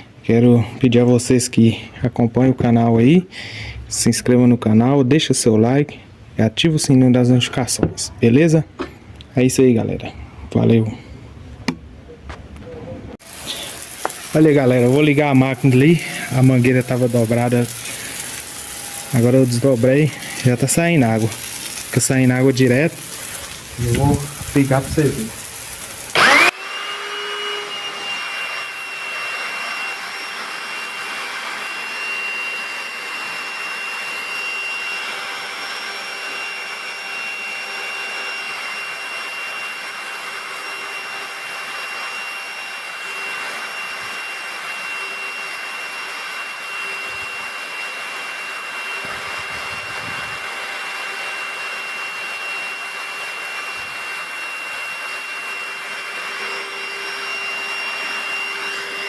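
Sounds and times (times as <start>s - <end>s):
pressure washer running: 13.2s - 59.0s.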